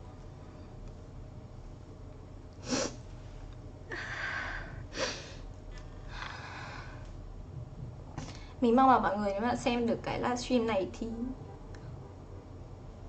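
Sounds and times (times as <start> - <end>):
woman sniffing: 2.6 - 3.0, 4.9 - 5.4.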